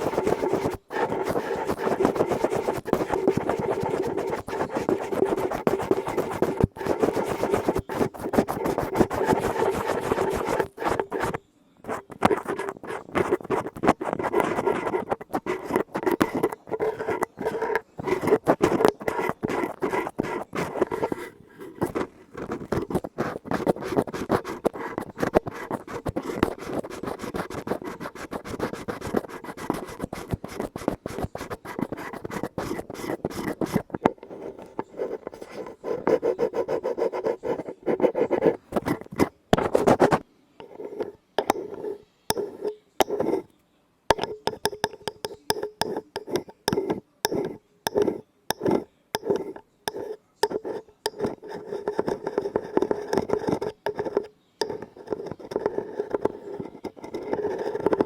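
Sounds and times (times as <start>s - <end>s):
scratching on an object: 0.0s - 43.5s, 44.1s - 58.0s.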